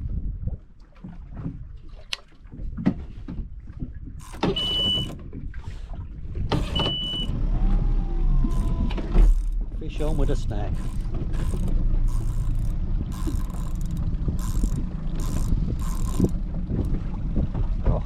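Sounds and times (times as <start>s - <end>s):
fishing reel whirring: 4.2s - 5.2s, 6.6s - 17.0s
low rumble: 7.1s - 18.0s.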